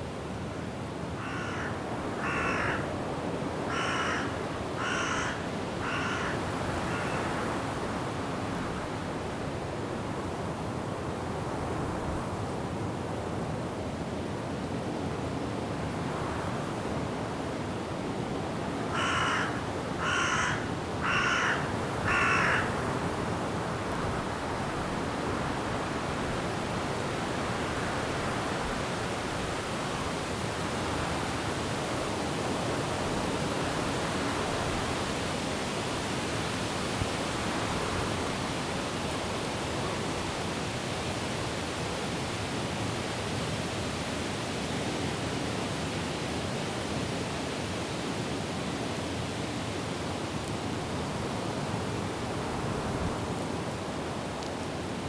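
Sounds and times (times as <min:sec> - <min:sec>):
wind through trees: 0:00.0 - 0:55.0
bird cawing: 0:01.2 - 0:02.9, 0:03.7 - 0:07.4, 0:18.9 - 0:22.8.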